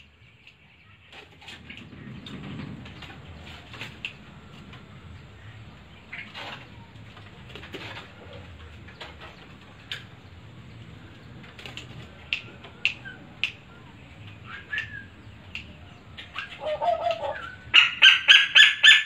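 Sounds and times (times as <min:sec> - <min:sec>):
bird calling: 0:07.7 - 0:19.0
bird clicks and snaps: 0:11.6 - 0:13.6, 0:14.2 - 0:17.3.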